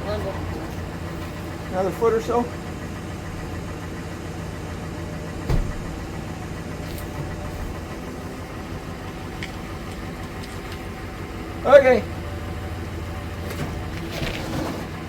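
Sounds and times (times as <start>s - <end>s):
vehicle engine idling: 0.0s - 15.0s
single clunk: 5.4s - 6.1s.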